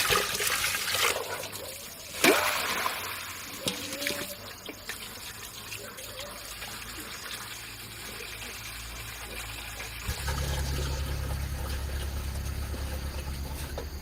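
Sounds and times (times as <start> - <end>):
water trickling: 0.0 - 14.0
steady low hum: 10.0 - 14.0.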